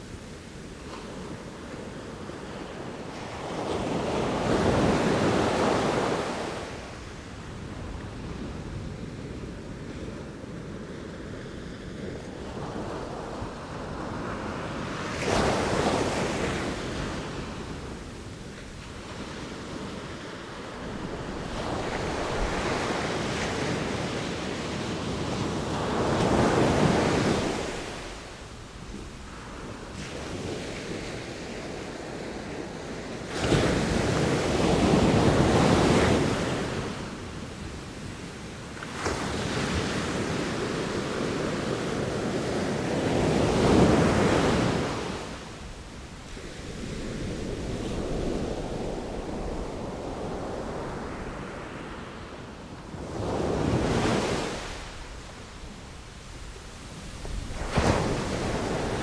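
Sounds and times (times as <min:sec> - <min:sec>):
sea waves breaking ashore: 0:53.3 - 0:59.0.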